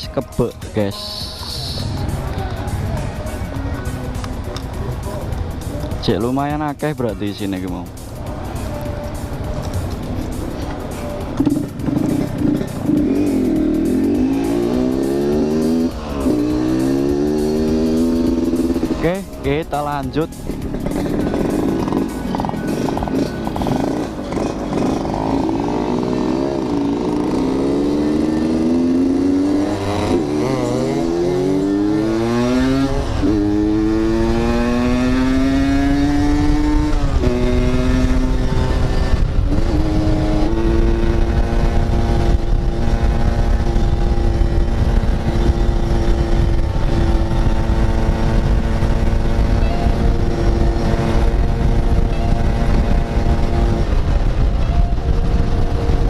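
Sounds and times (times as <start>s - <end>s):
motorcycle engine accelerating: 8.5s - 56.0s
wind on microphone: 36.0s - 56.0s.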